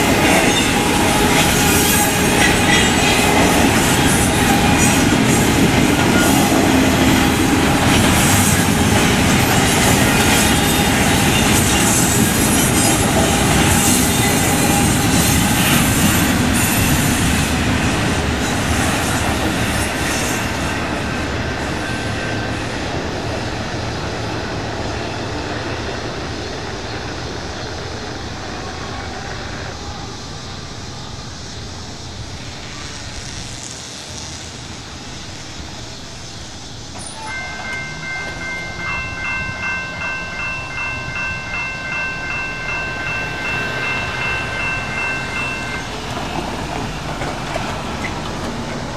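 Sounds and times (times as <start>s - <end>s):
freight train rumbling: 0.0s - 48.9s
crossing bell ringing: 37.0s - 47.1s.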